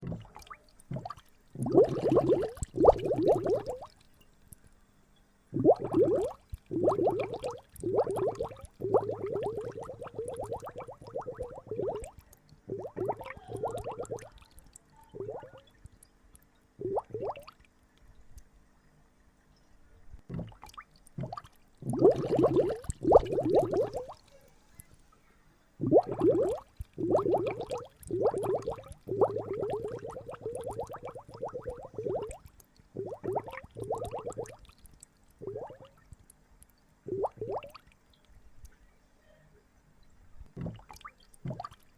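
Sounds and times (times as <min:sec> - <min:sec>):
water gurgling in bubbling bursts: 0:00.0 - 0:04.0, 0:05.6 - 0:14.4, 0:15.2 - 0:15.6, 0:16.8 - 0:17.6, 0:20.3 - 0:24.2, 0:25.8 - 0:34.8, 0:35.4 - 0:36.0, 0:37.1 - 0:37.8, 0:40.6 - 0:41.9.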